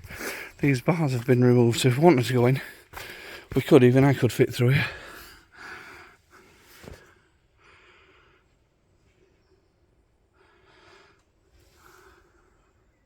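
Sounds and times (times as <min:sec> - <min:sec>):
man breathing faintly: 0:00.0 - 0:00.7, 0:02.6 - 0:03.6, 0:04.7 - 0:09.3, 0:10.2 - 0:13.0.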